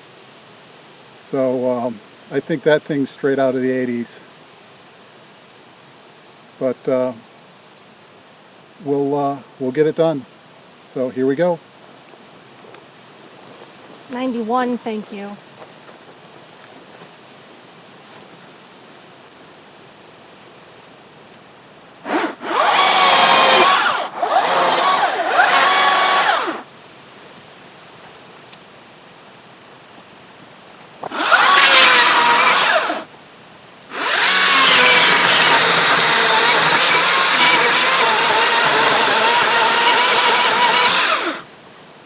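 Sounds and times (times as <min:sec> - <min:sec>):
chainsaw cutting wood: 0:22.0 - 0:26.7, 0:31.0 - 0:33.1, 0:33.9 - 0:41.5.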